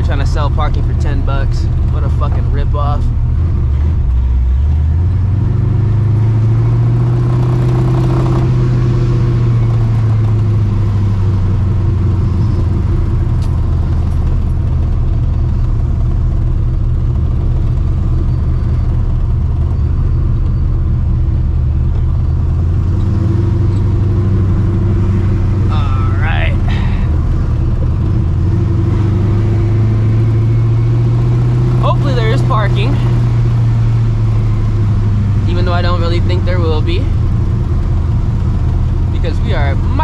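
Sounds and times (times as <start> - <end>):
car engine deep rumble: 0.0 - 40.0.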